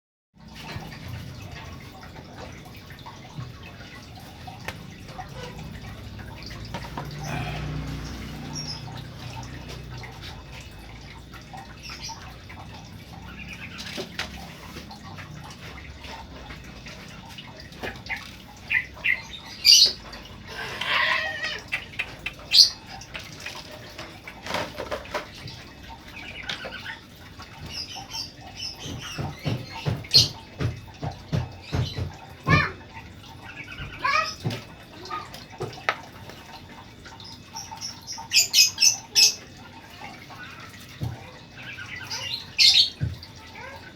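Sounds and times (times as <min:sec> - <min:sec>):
bird chirping calls: 0:37.2 - 0:43.8.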